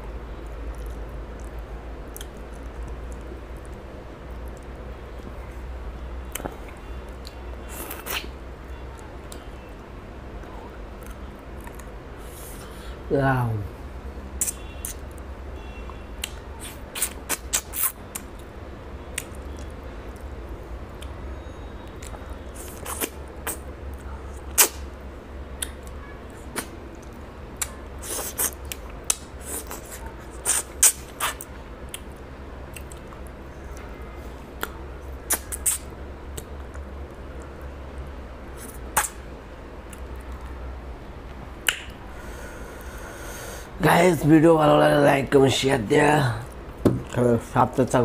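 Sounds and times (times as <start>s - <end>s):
steady low hum: 0.0s - 48.0s
chewing and lip-smacking: 0.4s - 5.4s, 6.3s - 9.5s, 10.4s - 12.0s, 16.2s - 20.3s, 21.8s - 24.9s, 25.6s - 37.6s, 38.6s - 39.2s, 39.8s - 40.6s.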